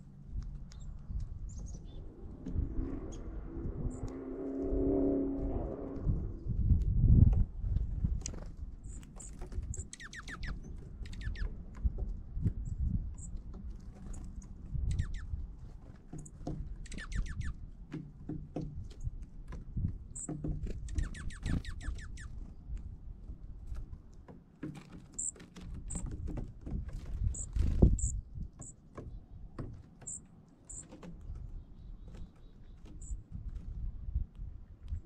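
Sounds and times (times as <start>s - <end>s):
songbirds chipping: 0.0s - 2.3s, 8.8s - 23.2s, 24.8s - 26.2s, 27.2s - 35.0s
low rumble: 0.9s - 8.2s.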